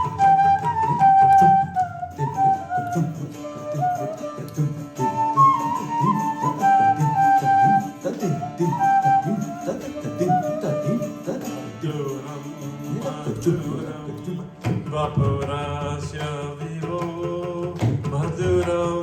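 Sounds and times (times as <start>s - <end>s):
flute melody: 0.0s - 12.5s
hand drums: 0.0s - 19.0s.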